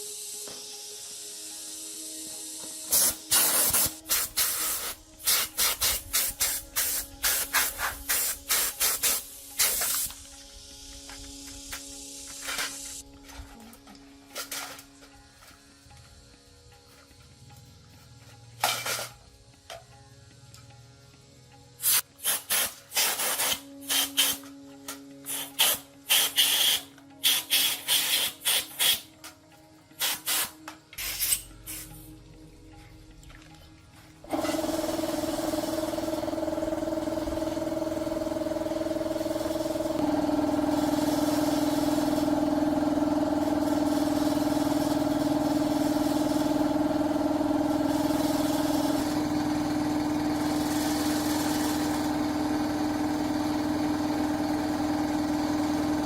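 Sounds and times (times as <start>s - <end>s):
short hissing strokes: 0.0s - 13.0s, 21.8s - 24.5s, 25.2s - 29.2s, 29.9s - 32.2s.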